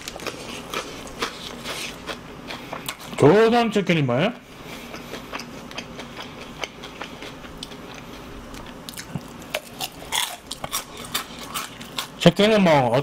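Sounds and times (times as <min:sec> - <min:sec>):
chewing fried chicken: 0:00.0 - 0:03.4, 0:04.6 - 0:12.5
wet mouth clicks and crunches: 0:04.9 - 0:12.2.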